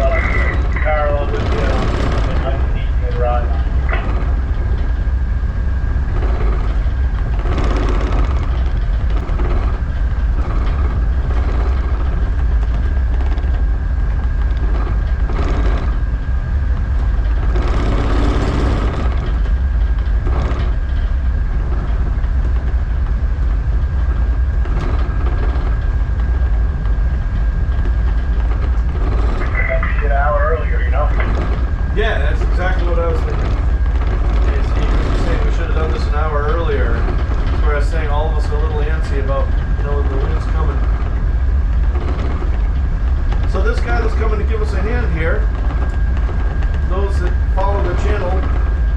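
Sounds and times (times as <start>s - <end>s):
diesel engine rumble: 0.0s - 48.9s
engine whine: 0.0s - 48.9s.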